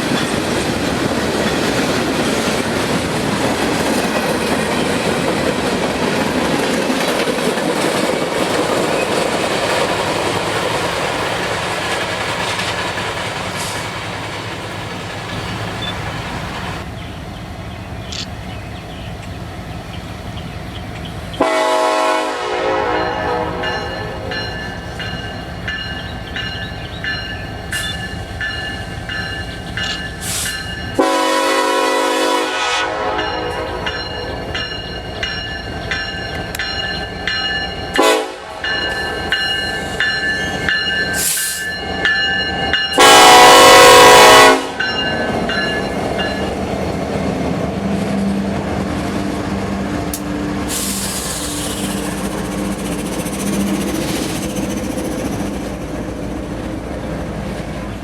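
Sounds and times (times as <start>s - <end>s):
train rumbling past: 0.0s - 58.0s
locomotive horn blast: 21.4s - 24.4s, 31.0s - 34.2s, 37.9s - 38.8s, 42.9s - 45.0s.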